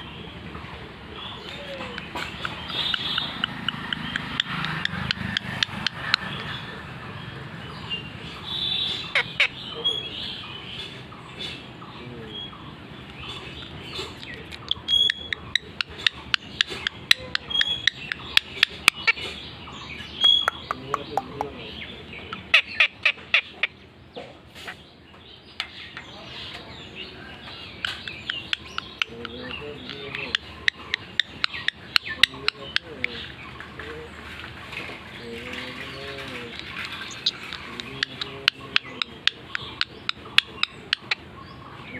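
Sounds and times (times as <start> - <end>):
parrot chirping: 0.0 - 11.6, 12.3 - 23.8, 26.9 - 34.7, 35.8 - 41.9.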